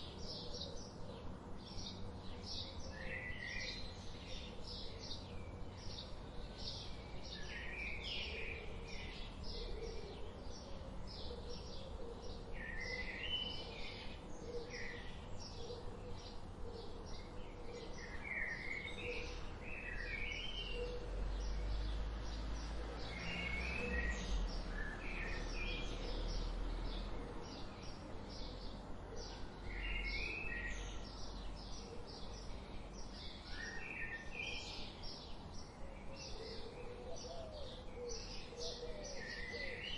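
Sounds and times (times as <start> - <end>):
birds chirping and warbling: 0.0 - 39.9.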